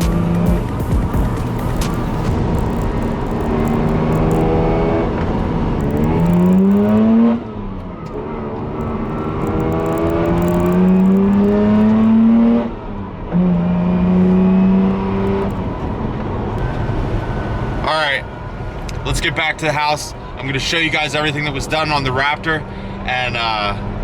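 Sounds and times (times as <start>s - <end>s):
engine accelerating through gears: 0.0s - 17.8s.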